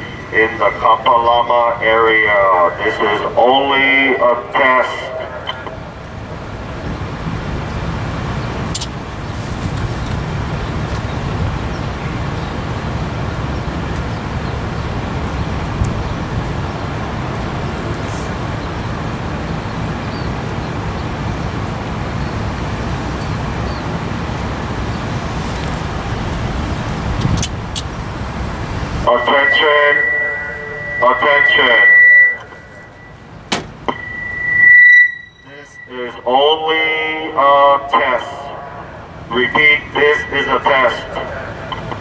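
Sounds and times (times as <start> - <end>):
road traffic rumble: 0.0 - 42.0
sharp click: 8.7 - 9.0, 27.2 - 27.9.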